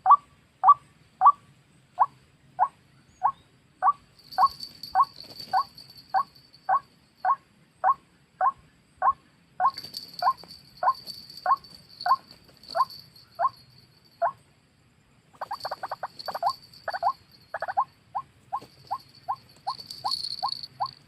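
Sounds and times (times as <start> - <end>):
waterhen calling: 15.3 - 20.9.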